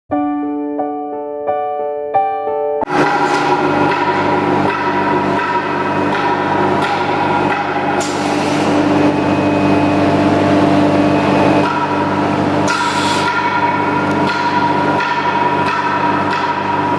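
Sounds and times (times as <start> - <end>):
sharp knocks: 2.8 - 8.3, 11.6 - 16.9.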